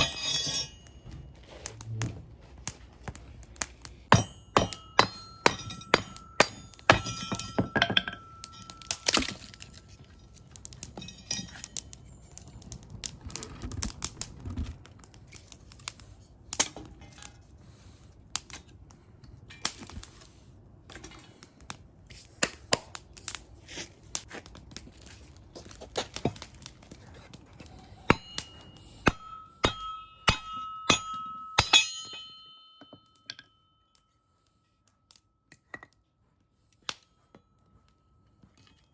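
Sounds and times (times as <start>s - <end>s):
metallic ring: 0.0s - 1.2s, 4.1s - 9.9s, 28.0s - 34.6s.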